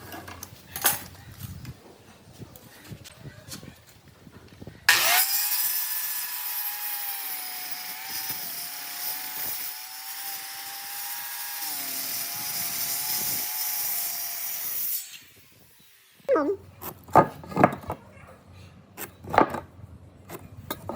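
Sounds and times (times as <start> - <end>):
power tool motor whine: 4.9 - 16.2
hiss of cutting wood: 4.9 - 16.3.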